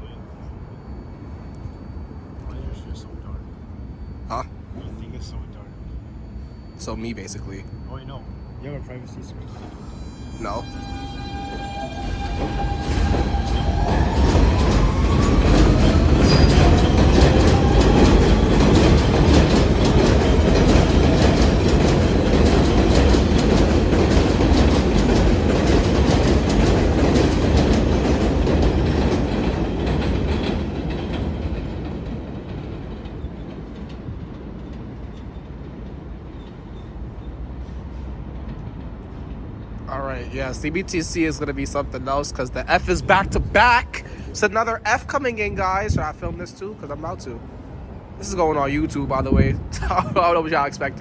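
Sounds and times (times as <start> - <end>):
train traction motor whine: 0.0 - 37.6
train wheels clattering over rail joints: 11.6 - 39.8.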